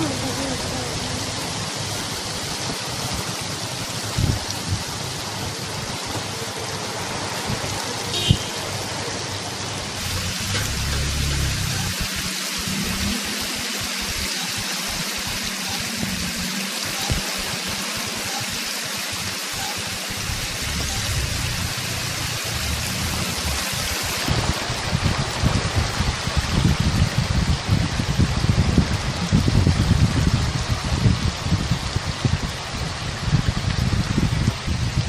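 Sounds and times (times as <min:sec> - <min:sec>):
rain and running water: 0:00.0 - 0:35.0
low uneven buffeting: 0:19.9 - 0:24.3.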